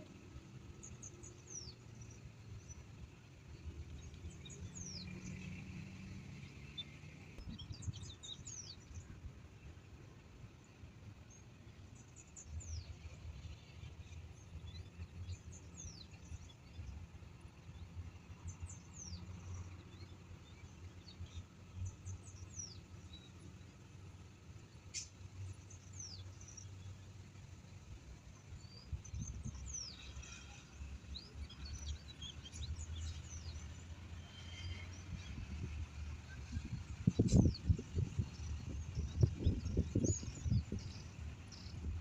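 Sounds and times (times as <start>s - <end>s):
birds chirping: 36.4s - 42.0s.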